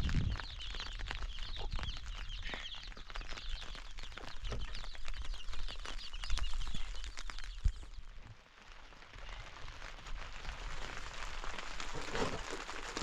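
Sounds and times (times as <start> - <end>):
low rumble: 0.0 - 0.5
birds chirping: 0.0 - 8.2.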